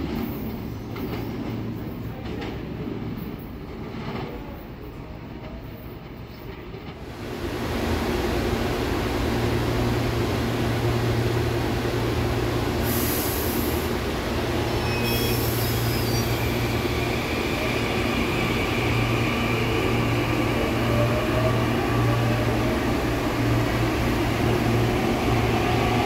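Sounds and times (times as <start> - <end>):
air hisses: 12.8 - 13.9.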